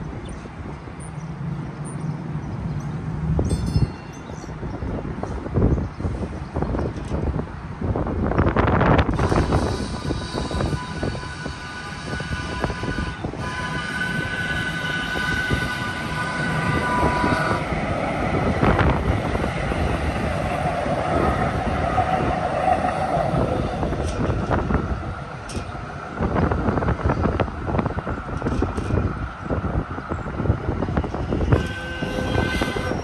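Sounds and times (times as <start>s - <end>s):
train rumble and whine: 0.0s - 33.0s
crossing bell ringing: 2.8s - 4.7s.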